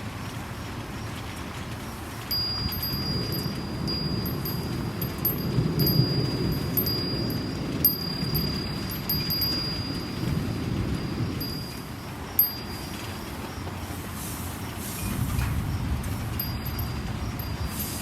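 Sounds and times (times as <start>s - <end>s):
rainstorm noise: 0.0s - 18.0s
wind chime ringing: 2.3s - 13.7s, 16.3s - 18.0s.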